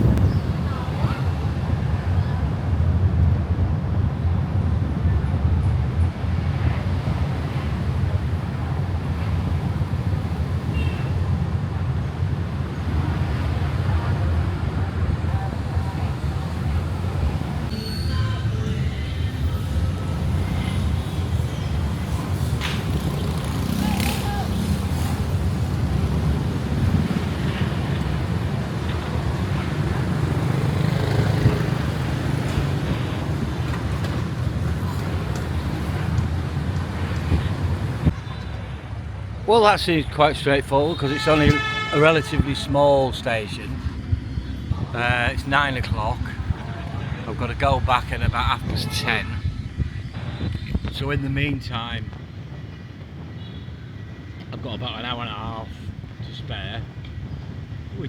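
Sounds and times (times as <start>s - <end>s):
road vehicle rumble: 0.0s - 58.0s
high squeak: 17.7s - 20.7s.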